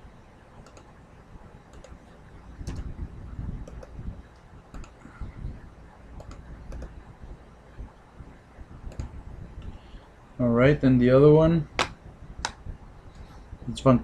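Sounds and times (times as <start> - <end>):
keyboard keystrokes: 6.2 - 6.9.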